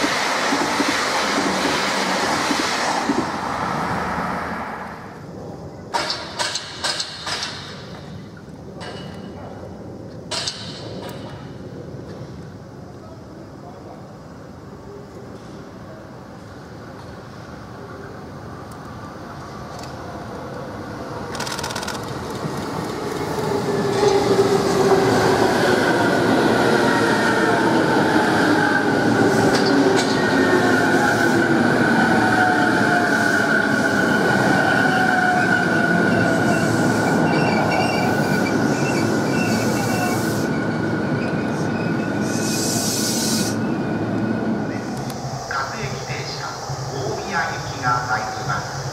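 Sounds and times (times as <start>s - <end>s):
train wheels rumbling on rails: 0.0s - 12.8s, 15.2s - 48.9s
train clicks: 5.9s - 8.1s, 21.3s - 23.5s.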